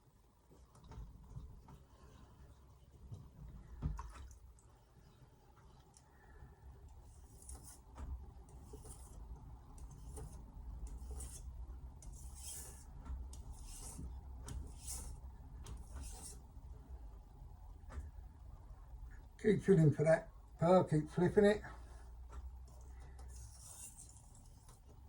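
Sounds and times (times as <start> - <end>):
knife scraping on whetstone: 7.0 - 7.9, 8.5 - 9.2, 9.8 - 16.4, 23.3 - 24.8.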